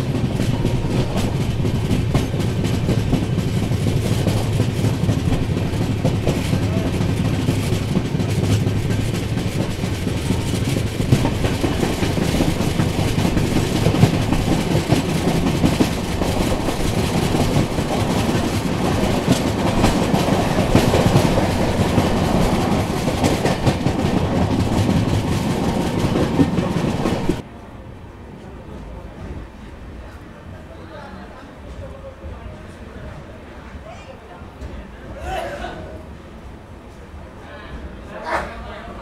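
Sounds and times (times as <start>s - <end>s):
wheel clatter over rails: 0.0s - 27.4s
train rumbling on track: 0.0s - 39.0s.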